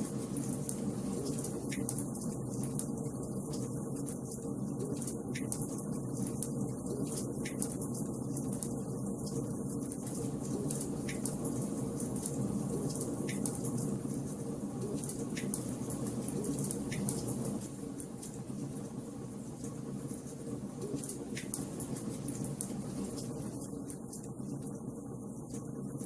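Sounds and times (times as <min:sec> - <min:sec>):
wood fire crackling: 0:05.4 - 0:24.8.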